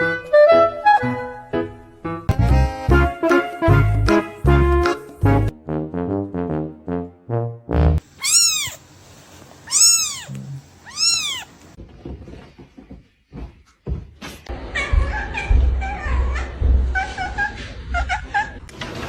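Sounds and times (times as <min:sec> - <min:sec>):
cat meowing: 0:08.2 - 0:08.8, 0:09.7 - 0:11.6.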